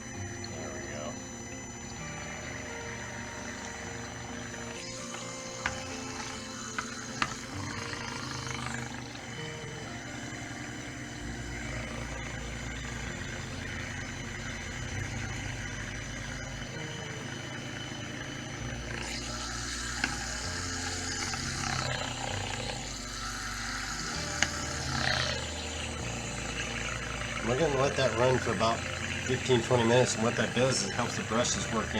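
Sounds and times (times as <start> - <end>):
background music: 0.0 - 31.9
electric motor running in water: 0.0 - 31.9
hiss of churning water: 18.9 - 31.9.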